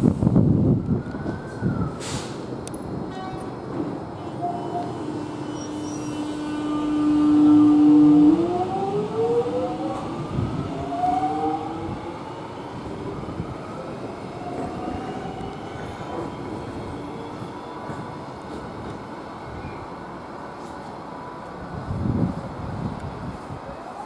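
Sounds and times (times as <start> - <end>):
electric train motors whining: 4.5 - 18.5.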